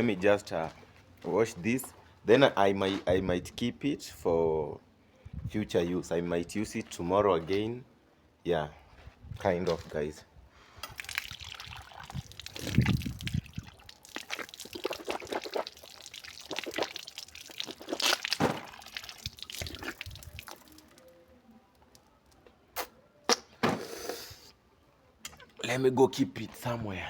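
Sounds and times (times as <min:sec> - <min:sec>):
water pouring and splashing: 0:10.8 - 0:21.1
water drips and knocks: 0:17.6 - 0:20.8.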